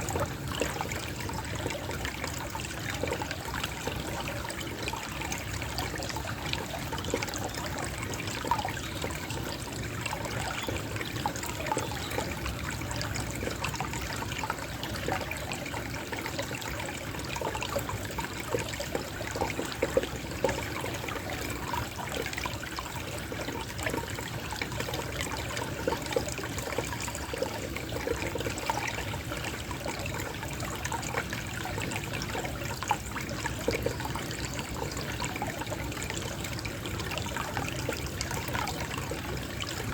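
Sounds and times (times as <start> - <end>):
water trickling: 0.0 - 39.9.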